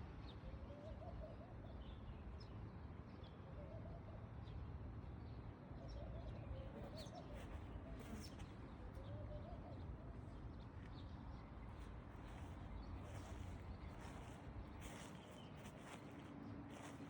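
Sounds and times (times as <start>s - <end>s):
low wavering bird coos: 0.4s - 1.7s, 5.8s - 10.6s.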